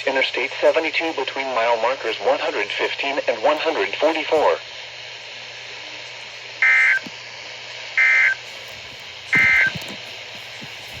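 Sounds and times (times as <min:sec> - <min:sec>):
radio hiss: 0:00.0 - 0:11.0
two-tone data warble bursts: 0:08.0 - 0:08.4.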